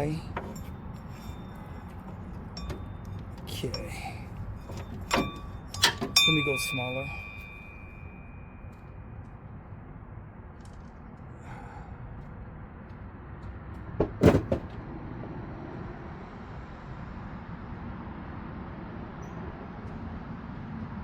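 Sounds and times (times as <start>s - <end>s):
sharp metal knocks: 0.0s - 9.1s
metallic ring of tool: 0.0s - 9.3s.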